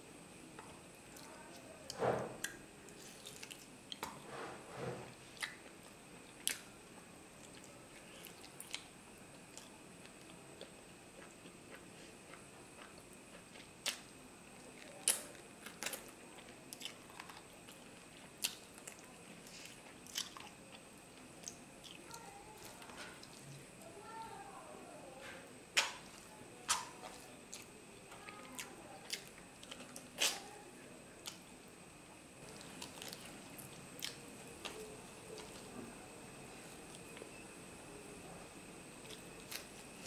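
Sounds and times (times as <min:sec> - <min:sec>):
person chewing food: 0:02.4 - 0:04.3, 0:07.4 - 0:23.6, 0:25.8 - 0:30.5, 0:32.4 - 0:35.7, 0:39.0 - 0:40.0.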